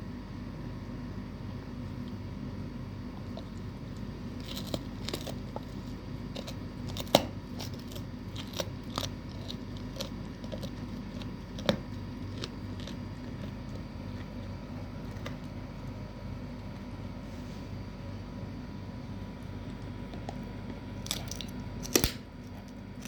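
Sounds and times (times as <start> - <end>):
dog crunching a bone: 3.0 - 17.0, 19.3 - 23.0.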